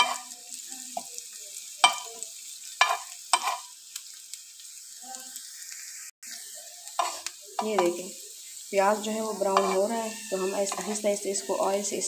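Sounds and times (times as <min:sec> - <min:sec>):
metal spatula scraping pan: 0:00.0 - 0:00.3, 0:02.8 - 0:03.7, 0:07.0 - 0:08.0, 0:09.2 - 0:12.0
onions sizzling in oil: 0:00.0 - 0:12.0.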